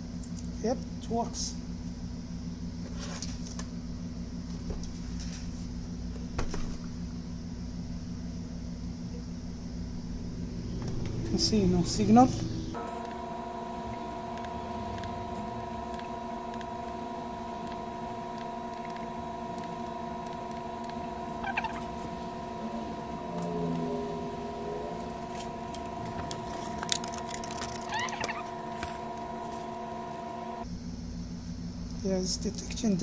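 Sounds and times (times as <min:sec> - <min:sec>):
electrical hum: 0:00.0 - 0:33.0
short squeaks: 0:21.3 - 0:22.2, 0:26.5 - 0:30.0.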